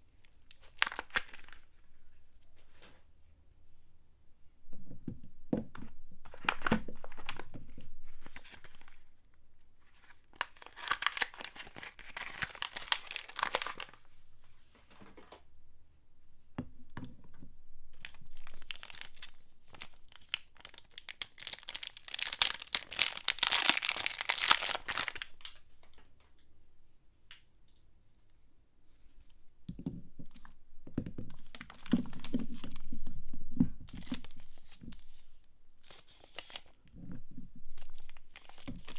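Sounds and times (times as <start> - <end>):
packaging torn and crinkled: 0.5 - 1.7, 10.4 - 14.0, 18.0 - 25.6, 37.8 - 38.9.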